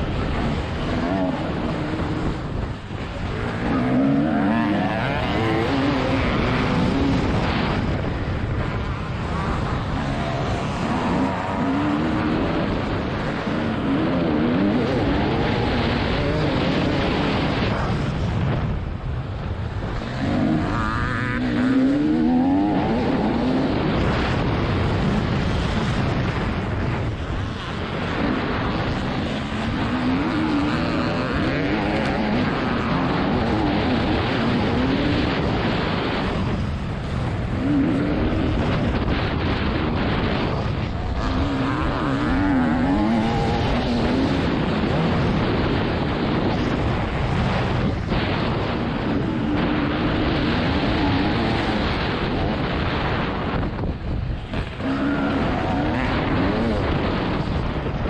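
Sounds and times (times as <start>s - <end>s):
wind rushing over microphone: 0.0s - 58.0s
two-stroke engine revving hard: 3.3s - 7.9s, 20.2s - 24.0s, 27.7s - 36.2s.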